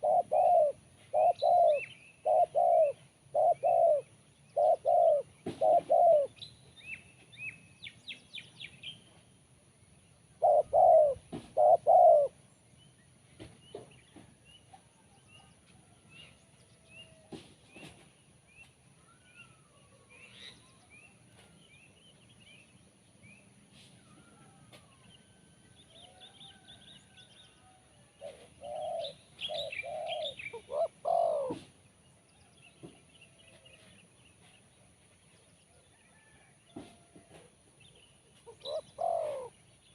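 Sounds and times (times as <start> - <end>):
dove cooing: 0.0 - 6.4, 10.4 - 12.4, 28.1 - 31.8, 38.4 - 39.6
small birds chirping: 0.0 - 9.3, 9.9 - 36.8, 37.8 - 39.9.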